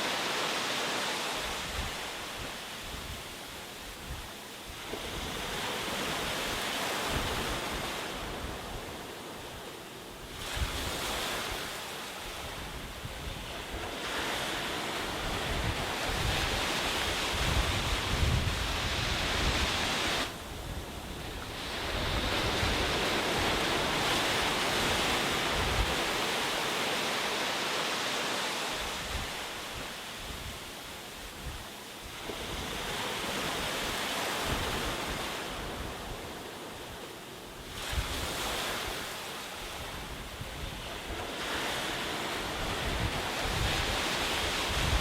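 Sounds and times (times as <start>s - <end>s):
sea waves breaking on a beach: 0.0s - 45.0s
wind rumbling on microphone: 1.3s - 26.8s, 28.8s - 45.0s.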